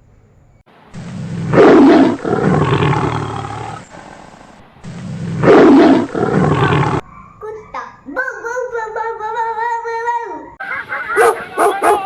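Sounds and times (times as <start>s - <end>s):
tiger roaring: 1.0s - 7.1s.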